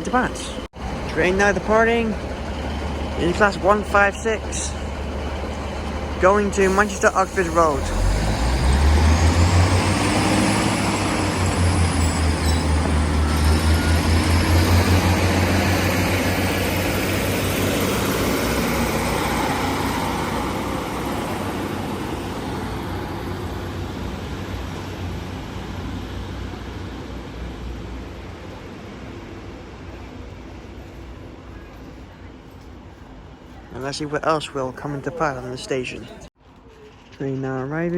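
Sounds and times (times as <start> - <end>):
diesel train engine throbbing: 0.0 - 37.9
high whine rising in pitch: 6.6 - 25.4.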